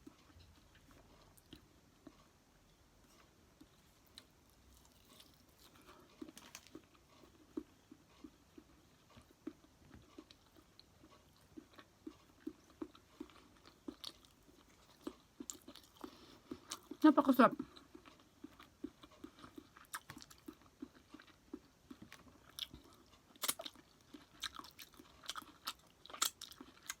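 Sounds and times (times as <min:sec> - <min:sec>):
close-miked chewing: 0:00.0 - 0:02.4, 0:03.0 - 0:27.0.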